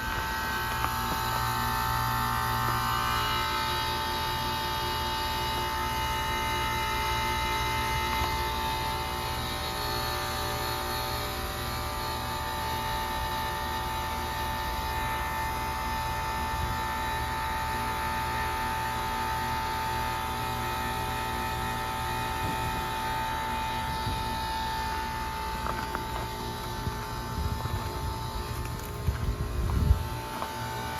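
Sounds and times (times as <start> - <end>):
heat pump low hum: 0.0 - 30.9
high whine: 21.8 - 30.9.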